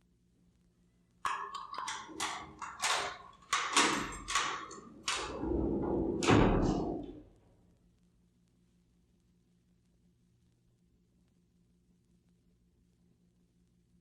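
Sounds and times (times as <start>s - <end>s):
jail door clicks and clanks: 1.3s - 7.4s.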